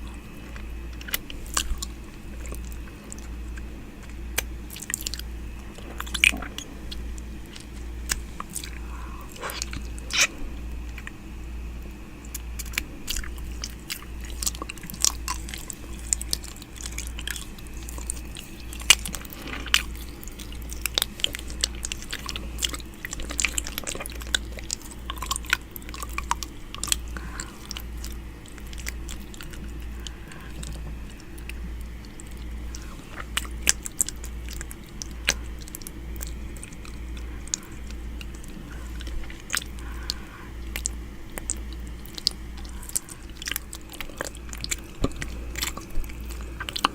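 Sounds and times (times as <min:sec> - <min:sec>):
steady low hum: 0:00.0 - 0:46.9
wet mouth clicks and smacks: 0:12.3 - 0:46.9.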